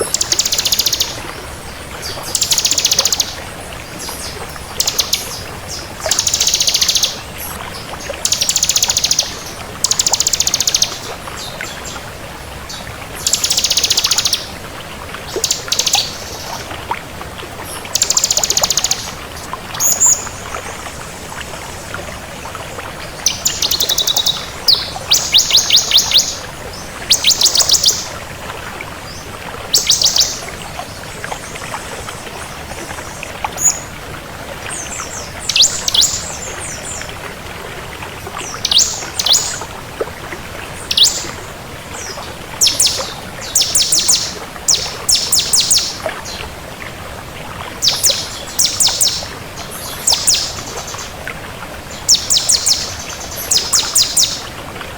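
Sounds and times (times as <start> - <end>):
bird trilling and chirping: 0.0 - 1.2, 2.3 - 3.4, 6.1 - 7.2, 18.0 - 19.1, 23.3 - 26.4, 27.1 - 28.1, 35.5 - 36.3, 40.9 - 41.2, 42.6 - 46.0, 47.8 - 49.3, 52.1 - 54.4.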